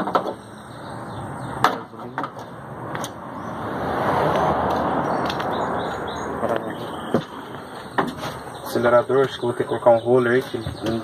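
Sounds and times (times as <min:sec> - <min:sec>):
vehicle passing by: 0:02.4 - 0:09.0.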